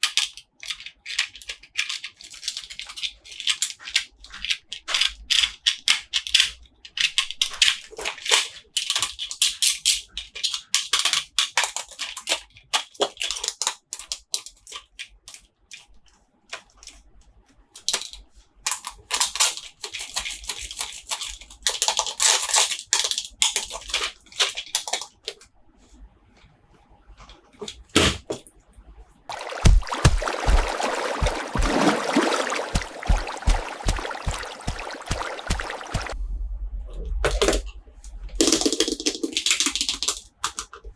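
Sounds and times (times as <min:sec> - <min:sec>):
packaging crinkling and rustling: 0:17.8 - 0:25.4
sharp taps and clicks: 0:29.5 - 0:36.2.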